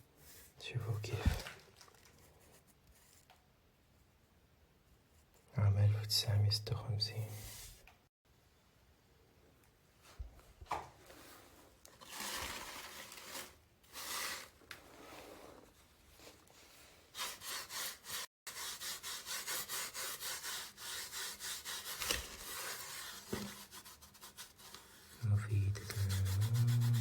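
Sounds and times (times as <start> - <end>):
paper rustling: 1.1 - 3.3, 11.9 - 16.7, 21.8 - 25.2
paper rubbing strokes: 7.3 - 7.8, 16.5 - 27.0.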